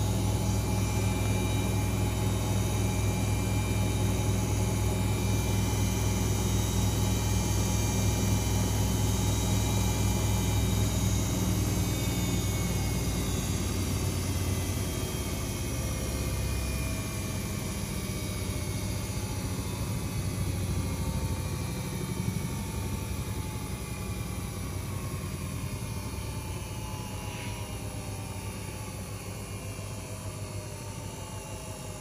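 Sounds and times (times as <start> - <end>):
washing machine spinning: 0.0 - 32.0.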